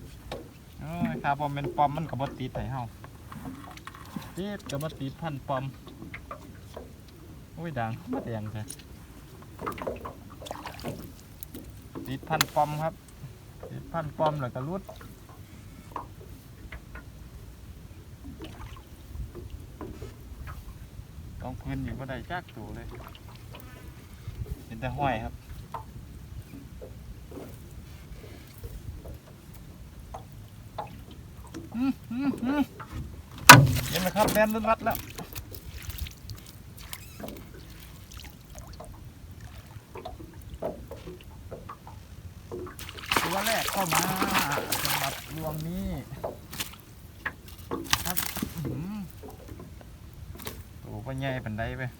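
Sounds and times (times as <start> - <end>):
water sloshing and dripping: 0.2 - 15.4, 18.2 - 20.7, 22.2 - 24.6, 25.5 - 51.3
short splashes: 10.4 - 11.4, 33.3 - 40.1, 42.7 - 49.3
knocks: 33.4 - 34.4
water dripping off net: 42.7 - 45.7, 47.7 - 48.8.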